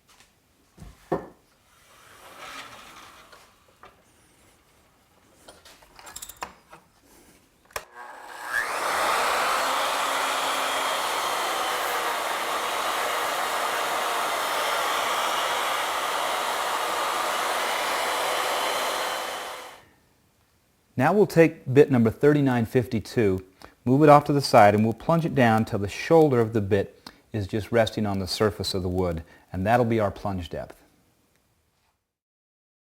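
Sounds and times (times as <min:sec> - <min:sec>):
woodworking router whining: 0:07.7 - 0:19.9.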